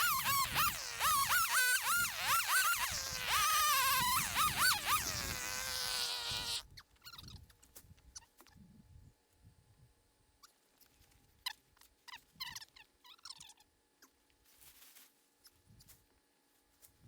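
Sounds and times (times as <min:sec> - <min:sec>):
chainsaw revving: 0:00.0 - 0:06.6.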